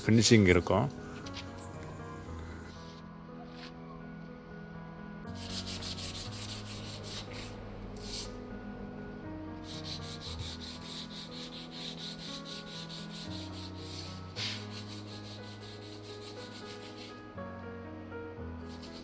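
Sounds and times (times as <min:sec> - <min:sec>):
soft background music: 0:00.0 - 0:19.0
sandpaper rubbing on metal: 0:05.4 - 0:08.3, 0:09.7 - 0:17.2, 0:18.7 - 0:19.0.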